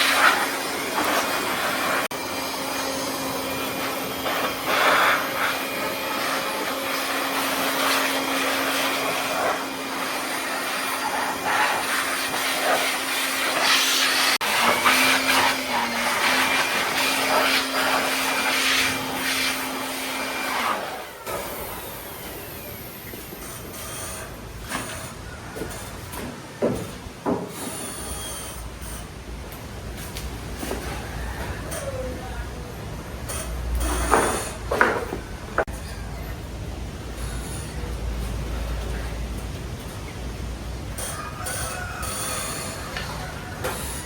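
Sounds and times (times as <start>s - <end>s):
small electric motor running: 0.0s - 24.4s.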